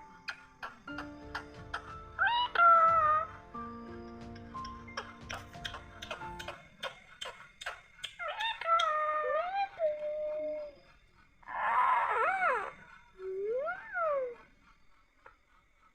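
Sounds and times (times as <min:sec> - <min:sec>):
parrot calling and squawking: 0:01.8 - 0:03.3, 0:04.6 - 0:09.8.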